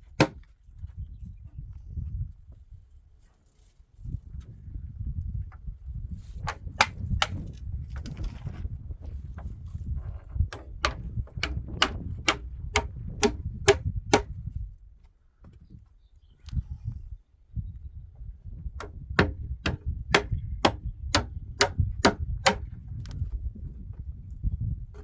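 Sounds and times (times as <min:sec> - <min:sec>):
hammer blows on wood: 0:10.5 - 0:14.3, 0:18.8 - 0:22.7.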